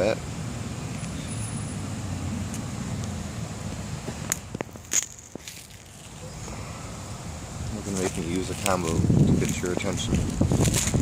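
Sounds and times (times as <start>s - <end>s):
wind rumble on microphone: 7.6s - 11.0s.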